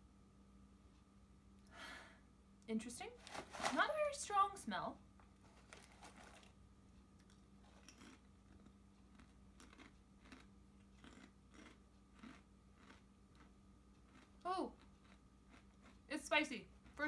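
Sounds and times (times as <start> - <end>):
low steady hum: 0.0 - 17.0
potato chip crunching: 7.2 - 17.0.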